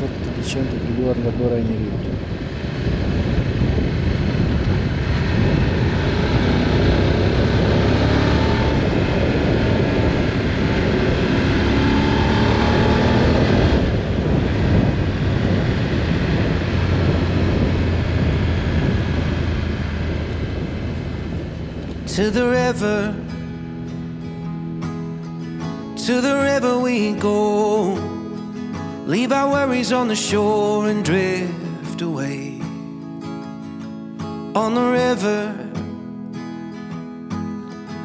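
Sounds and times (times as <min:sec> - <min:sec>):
motorcycle engine running: 0:00.0 - 0:24.8
road and wind noise: 0:00.0 - 0:26.2.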